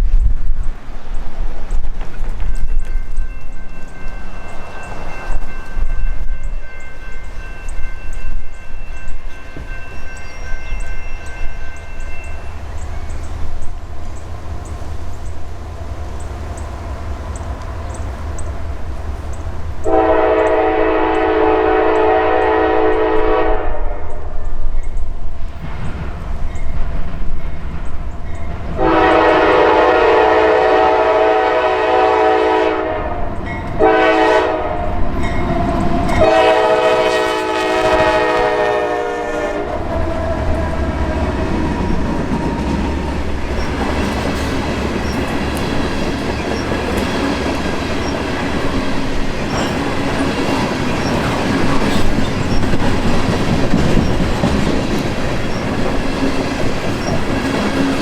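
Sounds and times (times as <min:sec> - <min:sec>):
train passing with loud rumble: 0:00.0 - 0:58.0
locomotive horn blasts: 0:19.8 - 0:24.2, 0:28.8 - 0:41.2
wheels clicking over rail joints: 0:39.7 - 0:58.0.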